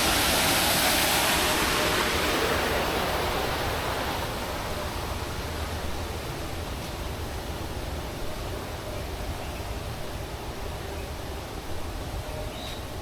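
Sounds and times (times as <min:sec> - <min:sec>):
falling water rushing: 0:00.0 - 0:08.6.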